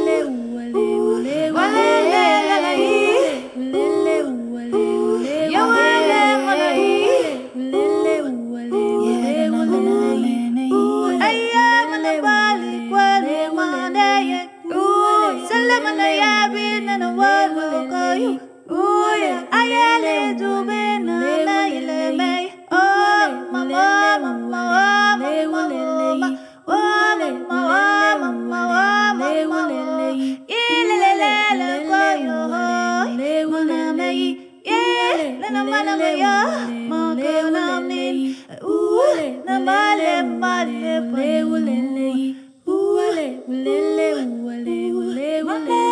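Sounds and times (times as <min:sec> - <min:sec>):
person singing: 0:00.0 - 0:12.0, 0:45.5 - 0:45.9.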